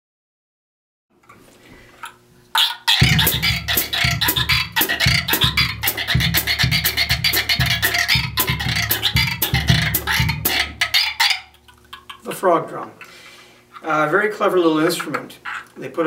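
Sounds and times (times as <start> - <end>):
friction drum croaking: 2.6 - 12.3.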